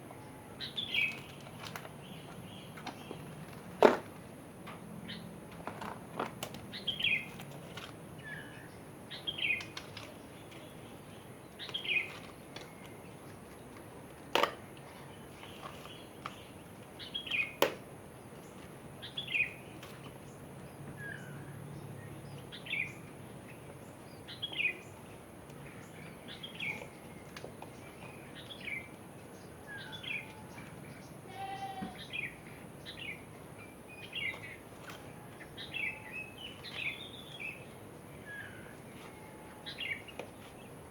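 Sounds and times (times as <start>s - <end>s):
bird chirping: 0.1s - 3.4s, 6.7s - 7.4s, 8.2s - 13.6s, 18.4s - 40.8s.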